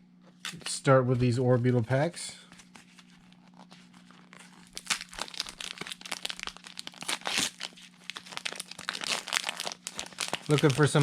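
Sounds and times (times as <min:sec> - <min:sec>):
foil pack crinkling and tearing: 0:02.9 - 0:11.0.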